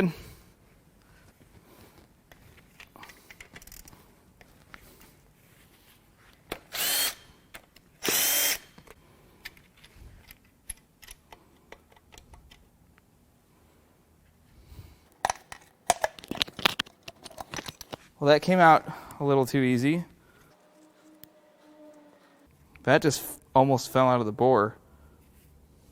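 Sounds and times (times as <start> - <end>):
power tool running: 8.0 - 8.7, 20.5 - 22.5
metallic clicks and clatter: 15.1 - 18.0.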